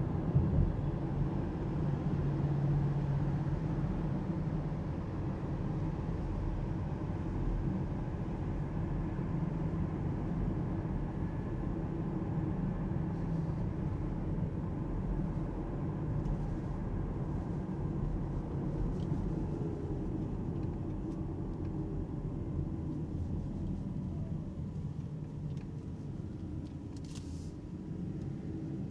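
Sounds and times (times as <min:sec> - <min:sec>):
road and tyre rumble: 0:00.0 - 0:28.9.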